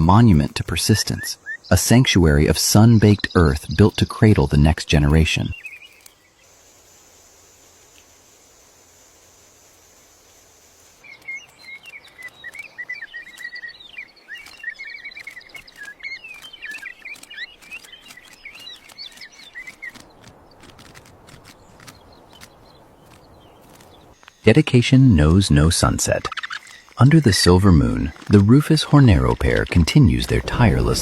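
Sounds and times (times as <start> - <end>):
birds chirping and chattering: 0.0 - 6.6, 10.6 - 31.0
even hiss: 0.0 - 12.7, 24.1 - 31.0
high-pitched insect buzz: 5.7 - 13.6
sharp ticks: 11.1 - 13.7, 14.3 - 24.4.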